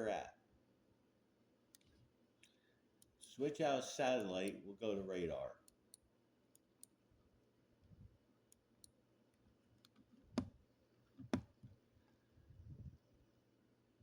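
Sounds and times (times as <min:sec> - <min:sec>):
computer mouse clicking: 0:09.8 - 0:10.6.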